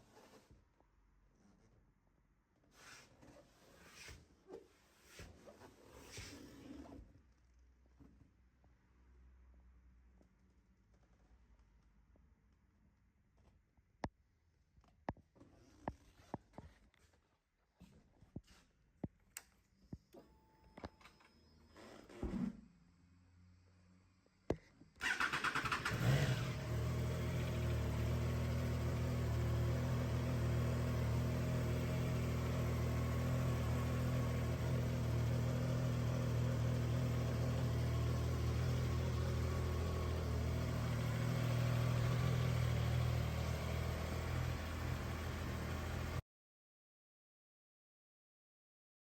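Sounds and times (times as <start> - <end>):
motorcycle engine starting and idling: 25.0 - 46.2.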